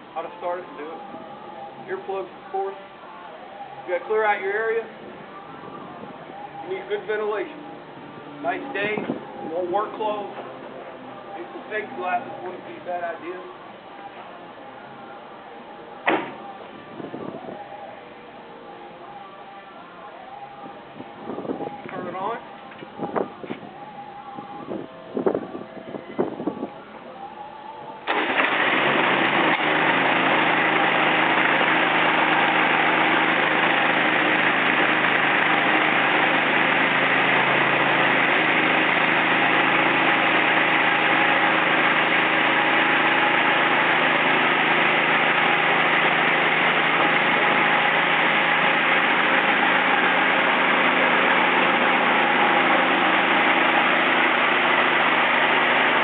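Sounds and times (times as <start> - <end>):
concrete floor grinder running: 28.1 - 56.0.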